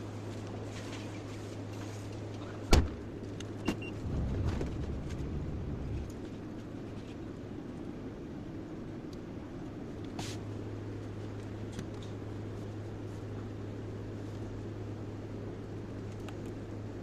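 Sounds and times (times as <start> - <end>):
excavator diesel engine running: 3.1 - 6.6.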